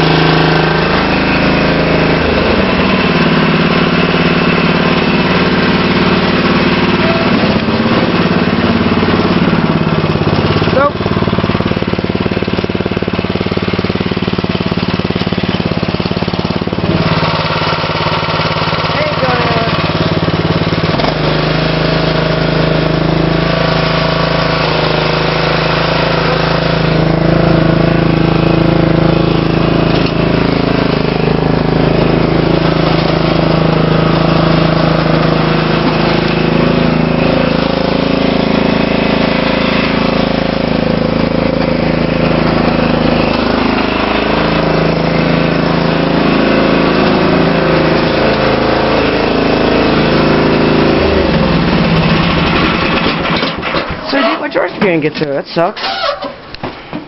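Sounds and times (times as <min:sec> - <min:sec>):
lawn tractor engine running: 0:00.0 - 0:57.0.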